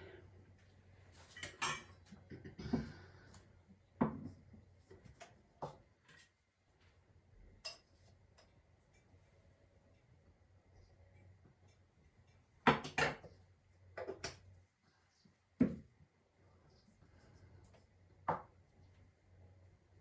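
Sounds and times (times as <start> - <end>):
dishes and utensils clinking: 1.2 - 2.8, 7.6 - 8.6.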